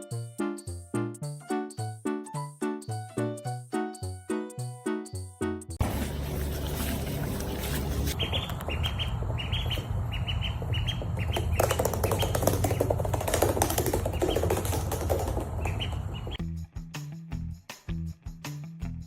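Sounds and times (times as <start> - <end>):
rustling or wing flapping: 5.8 - 8.2, 10.9 - 16.4
small bird chirping: 8.1 - 12.9, 15.6 - 16.4.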